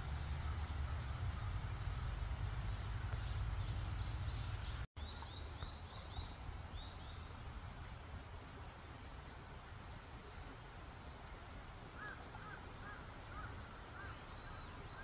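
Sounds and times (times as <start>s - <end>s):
steady low rumble: 0.0s - 4.9s
songbird chirping: 0.0s - 7.5s.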